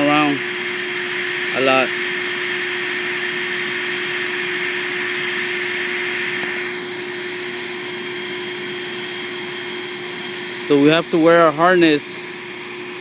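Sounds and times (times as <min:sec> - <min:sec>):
steady machine noise: 0:00.0 - 0:13.0.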